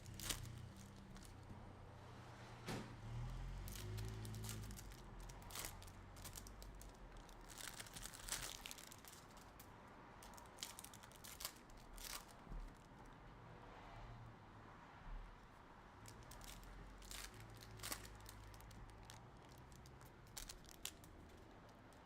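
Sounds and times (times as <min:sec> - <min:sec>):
packaging crinkling and tearing: 0:00.0 - 0:01.4, 0:03.6 - 0:12.9, 0:16.1 - 0:22.0.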